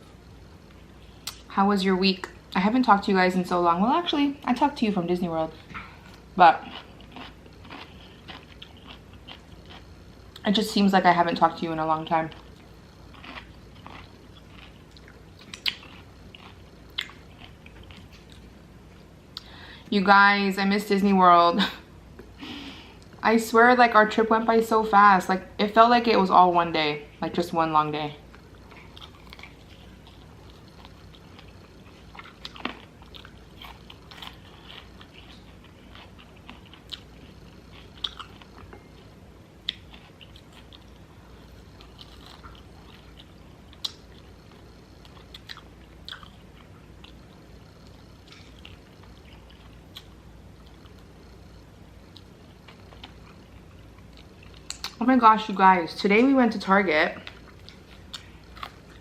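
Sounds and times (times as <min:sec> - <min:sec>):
room hum: 0:00.0 - 0:59.0
chewing food: 0:05.5 - 0:10.5, 0:11.5 - 0:19.5, 0:28.2 - 0:55.0, 0:57.2 - 0:59.0.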